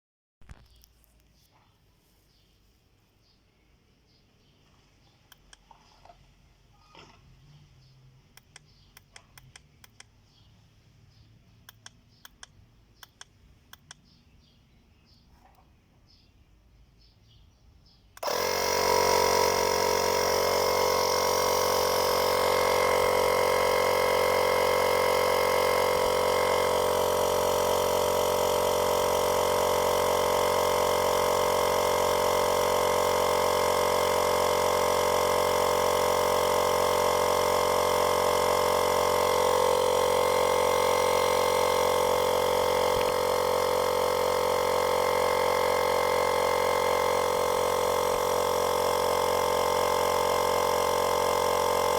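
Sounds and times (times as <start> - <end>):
tyre inflator running: 18.1 - 51.9.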